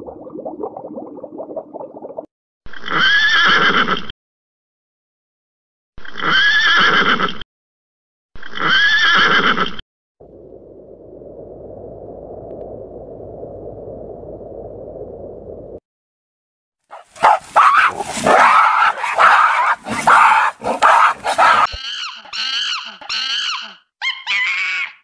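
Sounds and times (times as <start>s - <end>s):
horse whinnying: 6.2s - 7.3s
low rushing noise: 10.2s - 15.8s.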